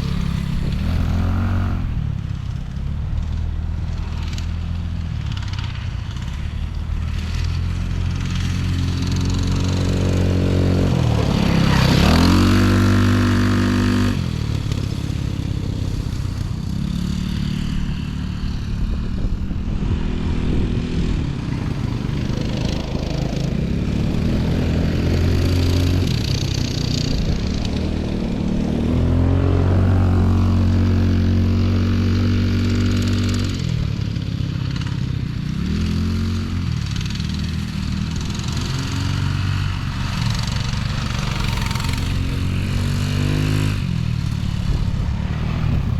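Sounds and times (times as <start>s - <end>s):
off-road vehicle engine revving: 0.0s - 45.9s.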